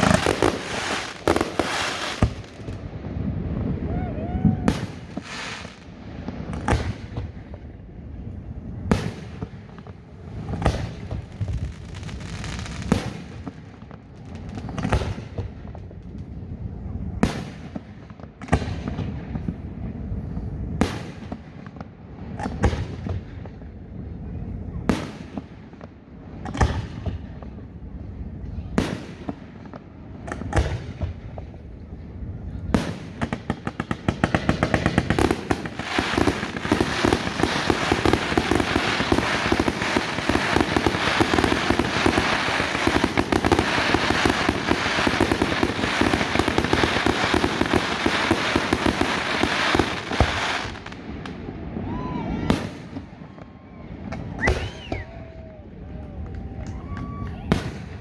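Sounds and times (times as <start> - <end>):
fireworks bangs: 0.0 - 58.0
crackling pops: 32.8 - 51.4.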